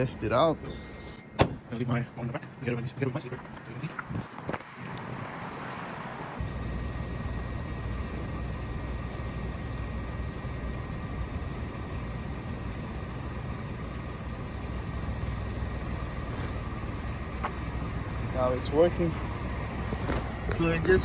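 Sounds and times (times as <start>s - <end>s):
car engine idling: 6.4s - 21.0s.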